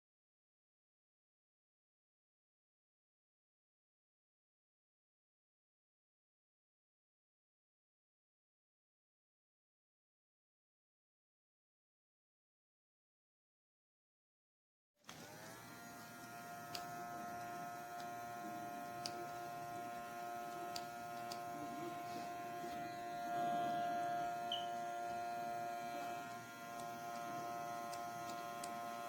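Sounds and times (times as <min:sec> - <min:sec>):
small compressor whining: 0:15.0 - 0:29.0.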